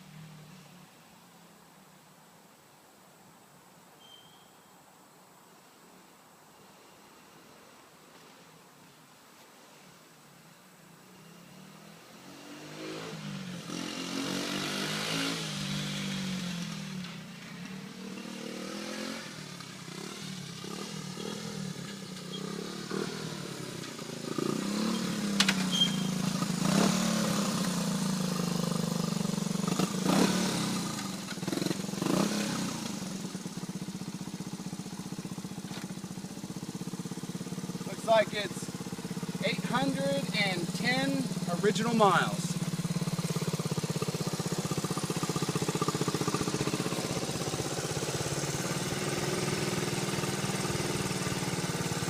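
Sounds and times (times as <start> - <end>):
motorcycle engine revving: 11.2 - 52.0.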